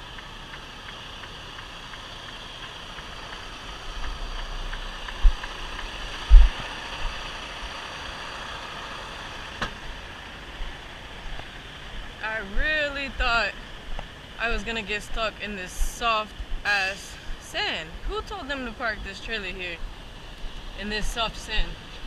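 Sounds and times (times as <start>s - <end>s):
faint regular ticking: 0.0s - 8.0s
truck engine running: 0.0s - 22.0s
heavy low thumps: 3.9s - 6.6s.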